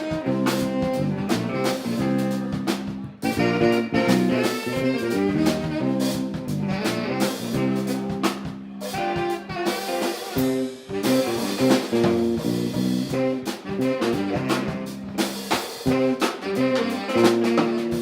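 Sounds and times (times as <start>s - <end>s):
funk band playing: 0.0s - 18.0s.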